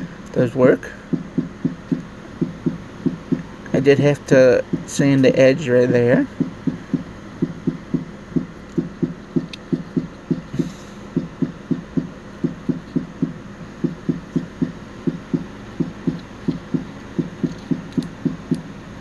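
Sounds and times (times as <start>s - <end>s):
low thumping beat music: 1.1s - 3.5s, 4.6s - 5.0s, 6.3s - 10.6s, 11.2s - 18.5s.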